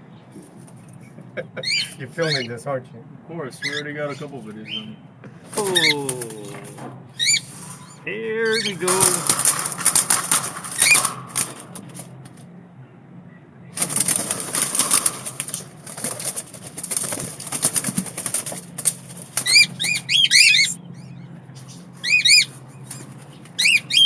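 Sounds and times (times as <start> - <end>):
bird wings flapping: 5.6 - 7.8, 8.5 - 12.4, 13.8 - 20.2
short bird chirps: 7.2 - 8.8, 19.5 - 21.1.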